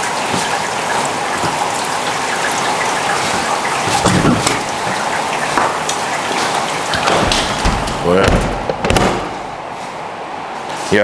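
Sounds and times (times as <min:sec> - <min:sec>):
heavy rain falling: 0:00.0 - 0:10.6.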